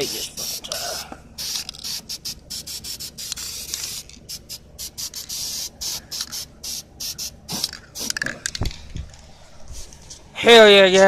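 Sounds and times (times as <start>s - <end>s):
spray paint can hissing: 0.0s - 8.3s.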